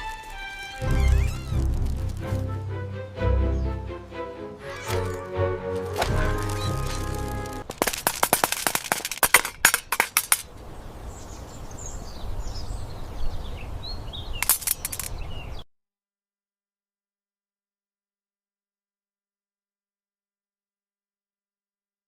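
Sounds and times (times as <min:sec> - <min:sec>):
faint high squeaks: 0:00.8 - 0:01.7.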